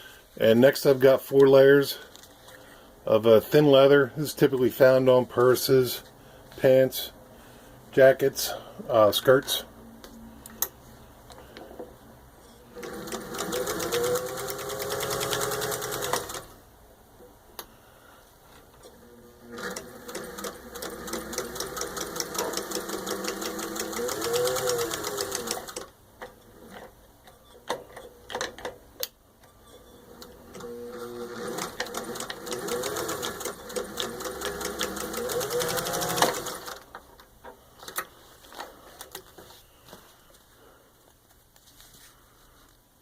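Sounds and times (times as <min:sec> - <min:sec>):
sewing machine stitching: 0:12.7 - 0:16.5, 0:18.9 - 0:25.9, 0:29.8 - 0:36.8.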